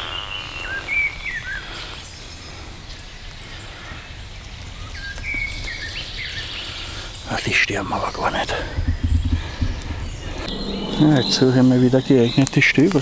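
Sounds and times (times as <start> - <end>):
birds chirping: 0.0 - 13.0
steady low rumble: 8.5 - 13.0.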